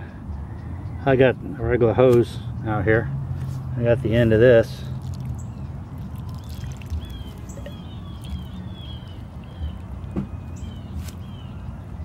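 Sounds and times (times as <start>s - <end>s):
small bird chirping: 4.9s - 12.0s.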